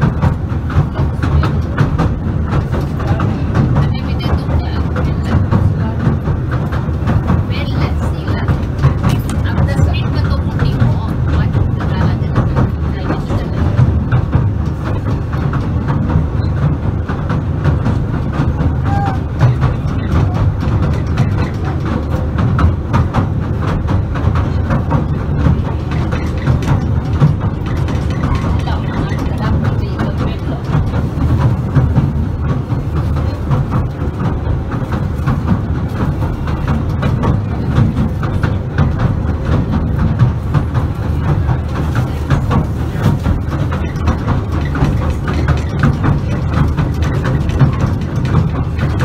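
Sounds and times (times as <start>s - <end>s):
clicks and rattles: 0.0s - 49.0s
train rumbling inside carriage: 0.0s - 49.0s.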